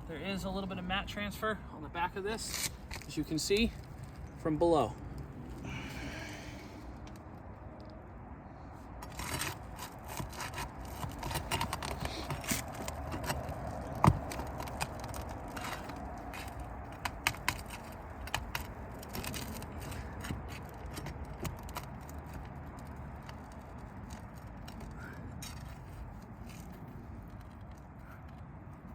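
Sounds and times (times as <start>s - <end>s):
tool scraping roof shingles: 9.0s - 28.5s.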